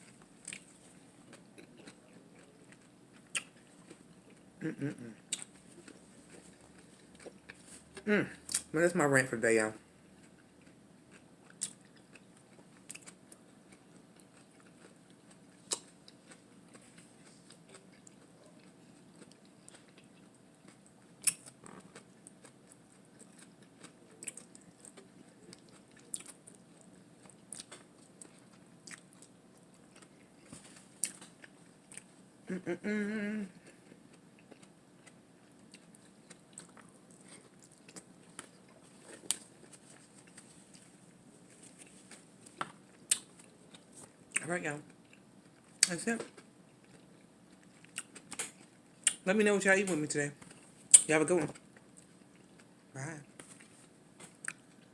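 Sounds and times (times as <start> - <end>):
person humming: 4.6 - 5.2, 8.1 - 8.4, 32.5 - 33.6
close chewing and biting: 5.3 - 8.7, 10.2 - 32.1, 33.6 - 44.4, 45.0 - 49.2.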